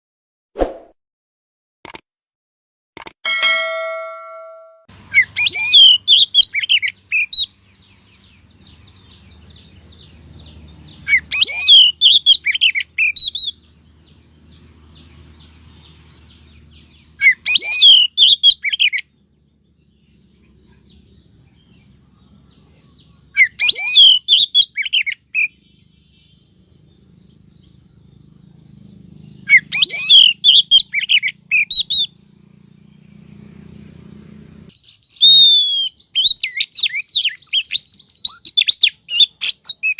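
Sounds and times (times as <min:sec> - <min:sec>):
bird chirps and whistles: 0:05.1 - 0:07.5, 0:11.1 - 0:13.7, 0:16.4 - 0:19.0, 0:23.4 - 0:25.5, 0:29.4 - 0:32.2, 0:34.7 - 0:39.9.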